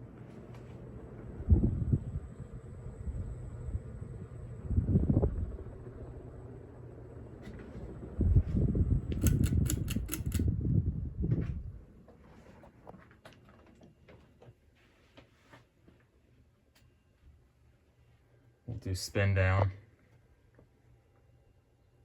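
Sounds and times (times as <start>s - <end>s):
ceiling fan motor running: 0.0s - 22.0s
loud low rumble: 1.2s - 9.4s
sharp clicks: 9.1s - 10.5s.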